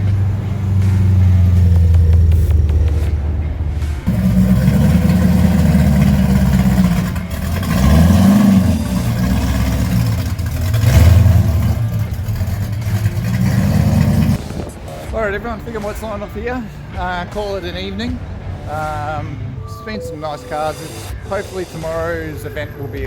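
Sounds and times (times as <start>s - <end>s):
car engine revving: 0.0s - 15.9s.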